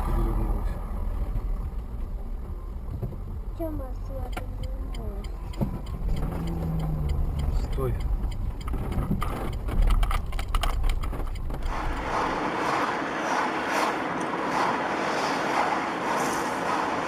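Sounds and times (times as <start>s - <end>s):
car cabin rumble: 0.0s - 12.4s
road and wind noise hiss: 0.0s - 17.0s
knocks and clicks: 4.2s - 12.0s.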